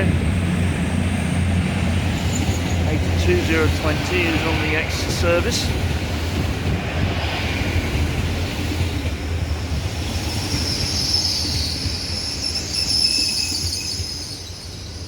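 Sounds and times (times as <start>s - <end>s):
train rumble: 0.0s - 15.0s
high-pitched metallic squeal: 10.6s - 15.0s.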